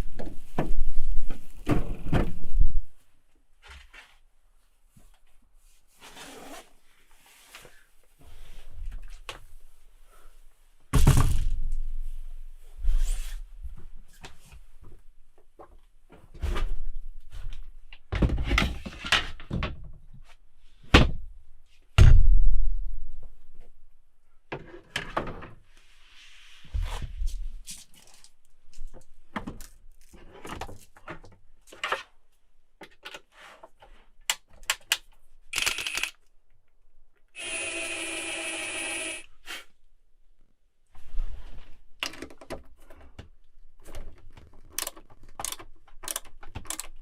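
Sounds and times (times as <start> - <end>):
rustling and handling noises: 25.6 - 36.1.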